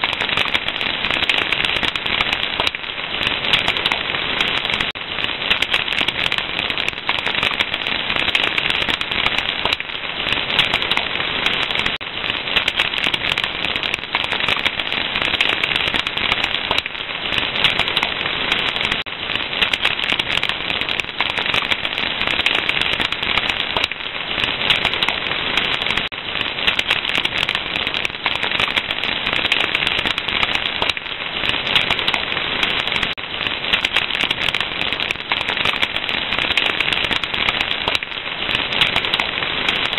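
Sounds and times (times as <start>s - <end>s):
fire crackling: 0.0s - 39.9s.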